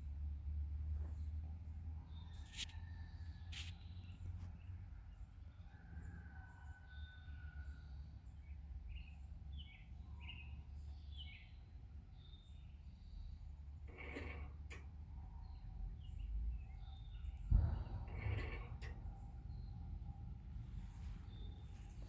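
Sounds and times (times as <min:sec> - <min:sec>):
small birds chirping: 0:07.7 - 0:13.8, 0:15.0 - 0:18.4, 0:19.0 - 0:22.0
steady low rumble: 0:16.0 - 0:22.0.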